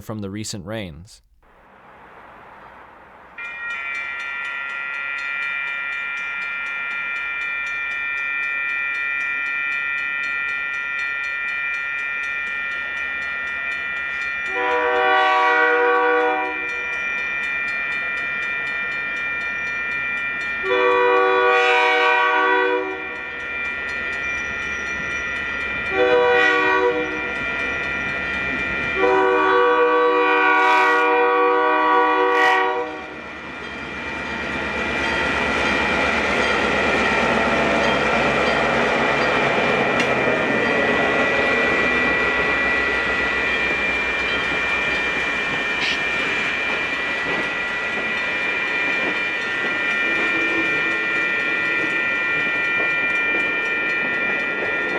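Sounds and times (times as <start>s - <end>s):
crossing bell ringing: 3.4s - 21.7s, 22.7s - 30.1s, 33.0s - 54.9s
locomotive horn blasts: 14.5s - 16.6s, 20.6s - 23.2s, 25.9s - 27.1s, 29.0s - 33.1s
train wheels rumbling on rails: 33.1s - 54.9s.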